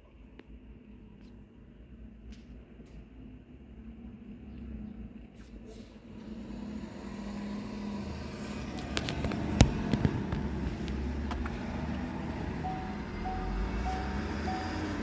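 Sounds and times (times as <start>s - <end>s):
car engine humming: 6.1s - 15.0s
beeping chime: 12.6s - 15.0s.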